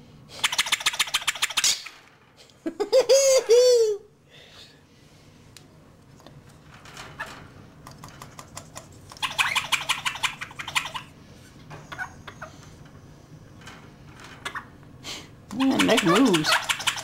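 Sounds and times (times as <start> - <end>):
pet bird calling: 9.2 - 11.1, 15.6 - 17.0.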